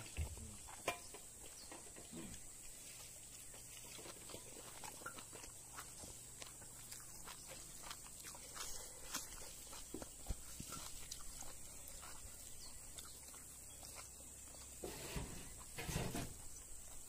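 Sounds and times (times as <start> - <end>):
chewing and lip-smacking: 2.7 - 14.8.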